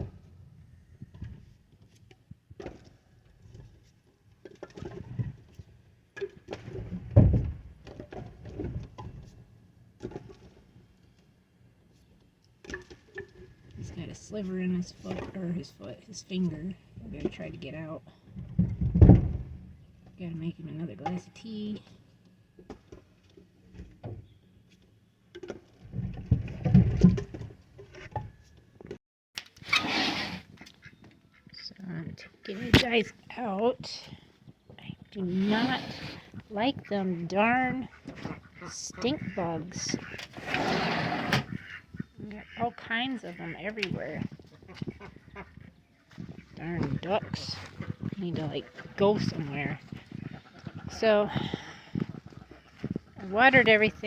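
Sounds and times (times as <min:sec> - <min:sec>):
firewood knocking and thudding: 0:18.4 - 0:19.7.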